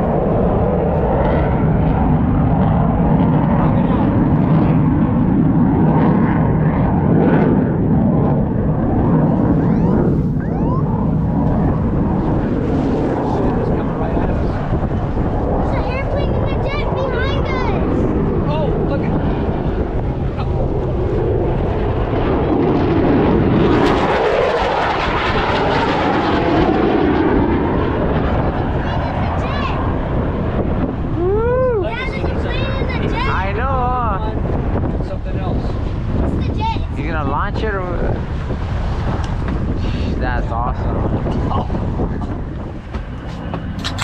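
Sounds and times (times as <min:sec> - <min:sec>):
rising whine: 0:00.0 - 0:15.9
loud engine drone: 0:00.0 - 0:30.2, 0:38.3 - 0:44.0
jet aircraft roar: 0:00.0 - 0:44.0.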